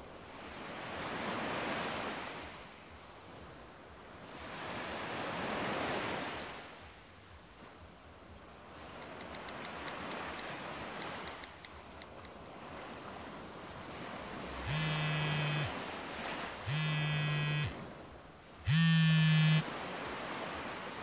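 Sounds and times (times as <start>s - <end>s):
surf-like noise: 0.0s - 21.0s
electronic buzzing beeps: 14.7s - 15.8s, 16.7s - 17.8s, 18.7s - 19.6s.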